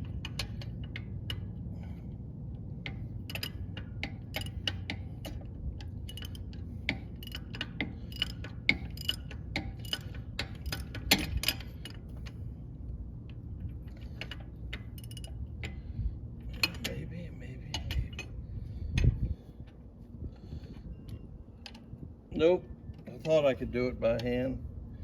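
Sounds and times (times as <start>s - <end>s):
ratchet wrench clicking: 0.0s - 2.2s, 2.8s - 12.0s, 13.8s - 19.1s
low steady hum: 0.0s - 25.0s.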